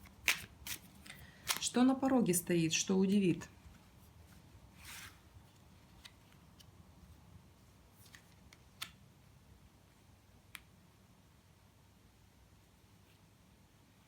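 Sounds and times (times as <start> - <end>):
cards clicking and tapping: 0.0 - 1.7, 8.0 - 9.0.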